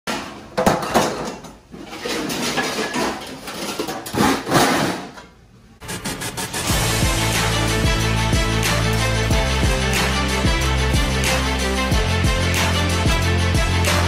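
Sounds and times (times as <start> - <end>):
dishes clattering: 0.1 - 5.2
music: 6.6 - 14.0.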